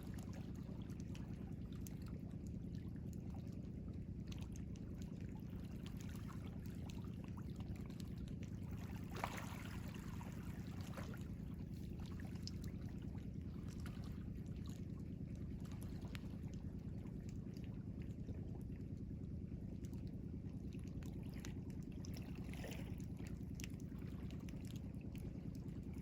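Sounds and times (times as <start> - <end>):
water splashing and trickling: 0.0 - 18.6.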